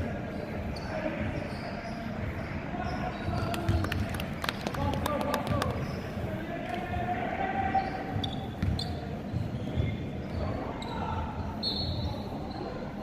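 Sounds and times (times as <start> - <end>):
sneakers squeaking on floor: 0.6 - 4.1, 5.4 - 6.2, 7.6 - 13.0.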